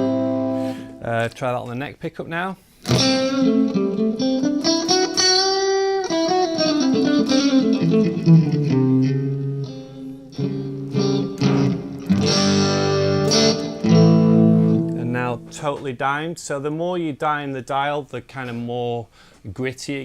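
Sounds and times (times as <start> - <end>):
overdriven electric guitar: 0.0 - 1.0, 2.8 - 15.6.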